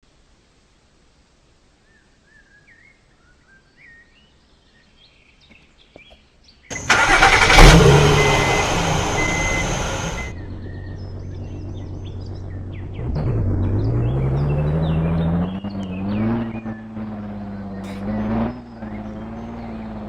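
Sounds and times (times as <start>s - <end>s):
birds chirping: 1.8s - 20.0s
steady low hum: 6.8s - 20.0s.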